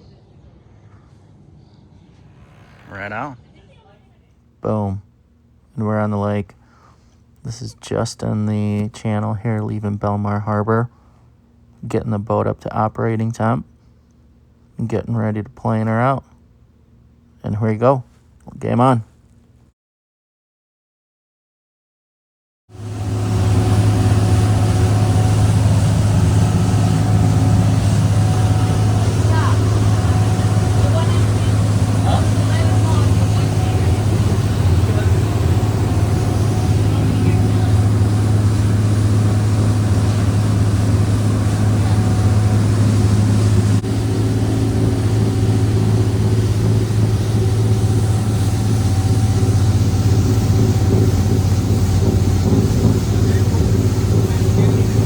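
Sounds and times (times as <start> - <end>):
rushing wind and water: 22.7 - 55.0
boat diesel engines droning: 22.8 - 55.0.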